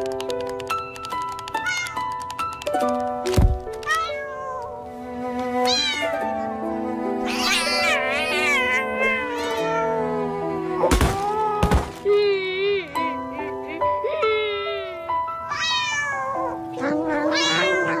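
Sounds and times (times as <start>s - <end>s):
background music with held notes: 0.0s - 18.0s
cat meowing: 1.6s - 2.1s, 3.8s - 4.8s, 5.6s - 6.3s, 7.2s - 10.0s, 15.4s - 18.0s.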